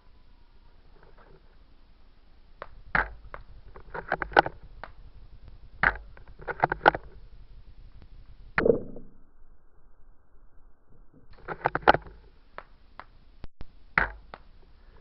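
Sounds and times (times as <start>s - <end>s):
sharp clicks and knocks: 2.6s - 9.1s, 11.2s - 14.7s.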